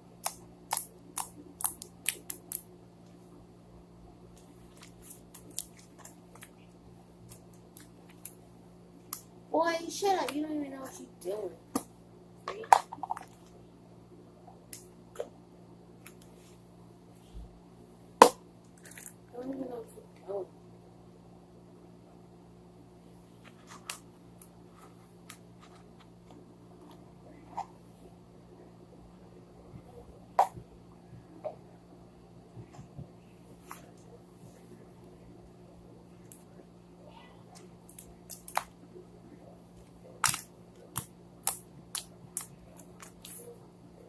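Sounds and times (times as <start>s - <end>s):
steady low hum: 0.0s - 44.0s
sharp clicks and snaps: 0.2s - 3.2s.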